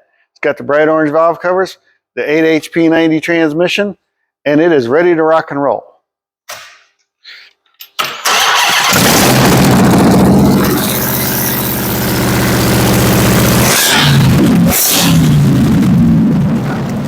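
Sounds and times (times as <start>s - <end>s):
engine cranking: 8.2s - 15.9s
engine idling loudly: 8.8s - 17.0s.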